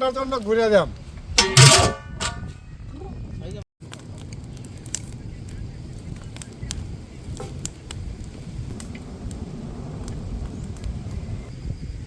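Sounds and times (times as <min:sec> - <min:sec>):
wood fire crackling and popping: 0:03.8 - 0:11.7
low rumble: 0:08.3 - 0:11.6.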